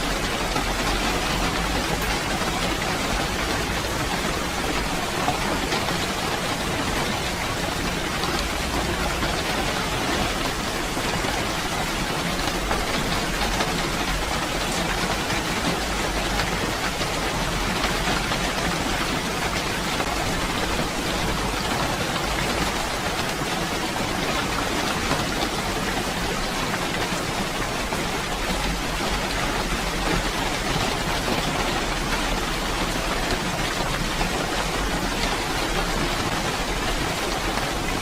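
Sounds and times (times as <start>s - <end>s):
steady rainfall: 0.0s - 38.0s.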